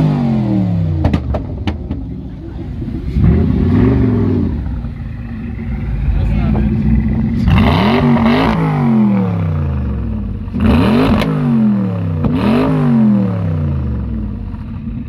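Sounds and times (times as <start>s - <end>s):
exhaust cracks: 0.0s - 11.5s
car engine revving: 0.0s - 15.0s.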